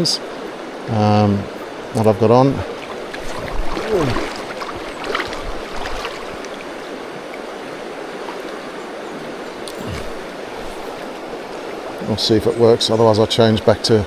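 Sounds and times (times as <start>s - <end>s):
fast-flowing river: 0.0s - 14.0s.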